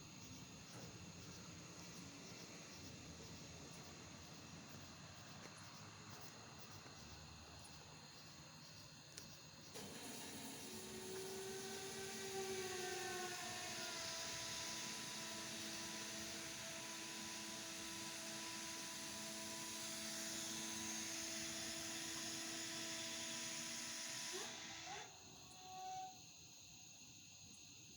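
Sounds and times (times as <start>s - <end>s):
diesel locomotives running: 0.0s - 26.0s.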